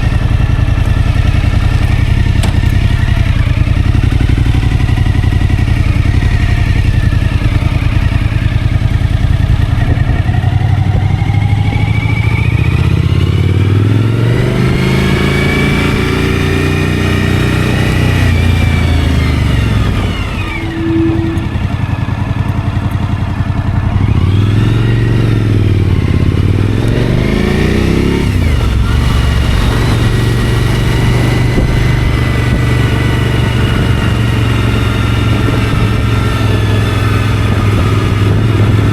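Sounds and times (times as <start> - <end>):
motorcycle engine revving: 0.0 - 38.9
road noise: 0.0 - 38.9
wind noise: 0.0 - 38.9.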